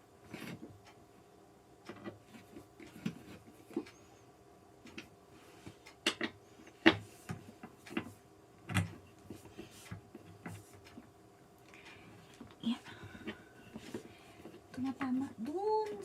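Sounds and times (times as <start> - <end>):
knocks and clicks of chair parts: 5.7 - 11.0.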